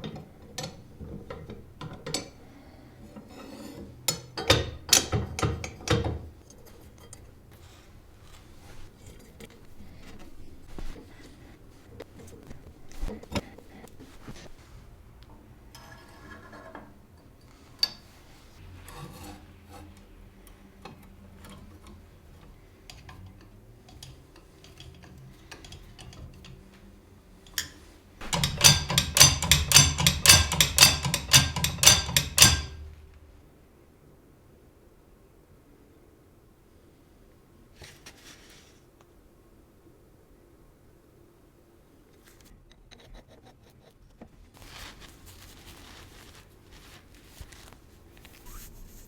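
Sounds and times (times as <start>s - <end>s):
light metallic clicks and knocks: 0.0s - 7.3s, 15.3s - 18.2s, 19.9s - 33.0s.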